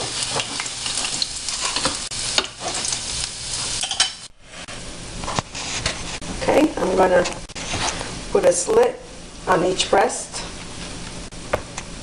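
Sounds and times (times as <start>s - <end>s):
garlic sizzling in hot oil: 0.0s - 4.6s.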